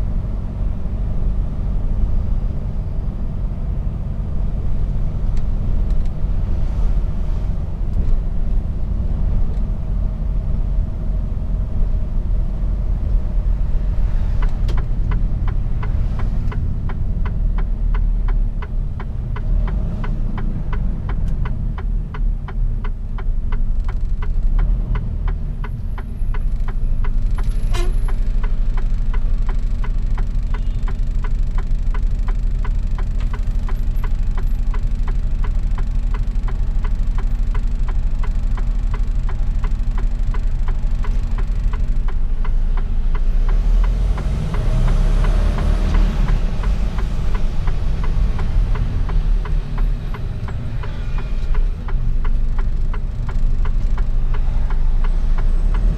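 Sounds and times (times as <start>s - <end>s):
diesel truck engine running: 0.0s - 55.9s
regular ticking: 14.3s - 27.5s, 28.1s - 55.9s.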